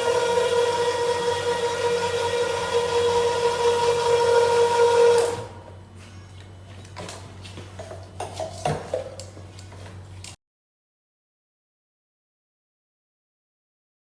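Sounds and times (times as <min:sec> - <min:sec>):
machine motor switching off: 0:00.0 - 0:05.6.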